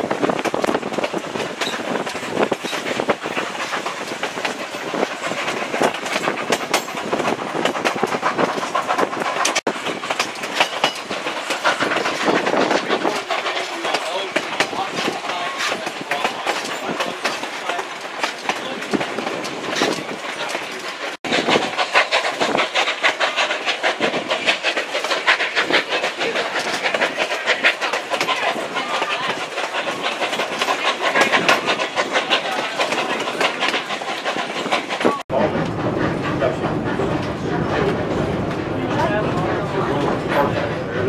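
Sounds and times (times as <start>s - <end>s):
low rumble inside train coach: 0.0s - 41.0s
train wheels rattling on rails: 0.0s - 41.0s
wheels clicking over rail joints: 0.0s - 41.0s.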